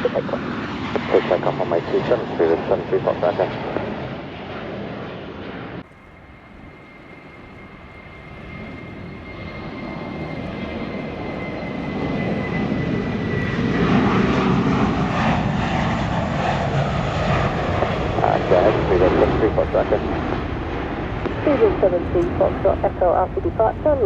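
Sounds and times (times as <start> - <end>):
jet engine rumble: 0.0 - 24.0
high steady whine: 5.8 - 24.0.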